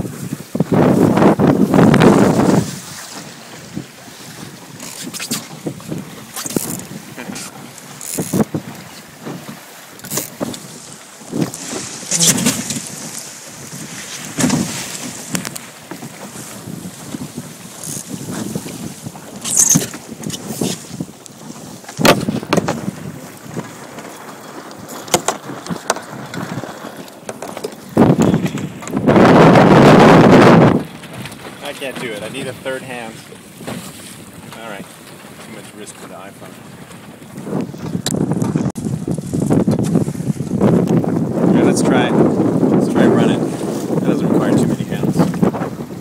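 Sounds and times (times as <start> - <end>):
water splashing against hull: 0.0 - 46.0
wind on microphone: 0.0 - 46.0
sharp knocks: 22.0 - 22.8.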